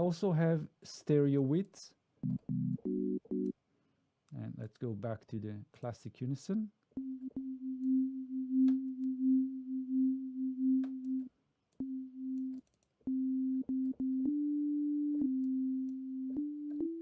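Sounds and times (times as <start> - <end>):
synthesizer notes: 2.2 - 3.5, 7.0 - 17.0.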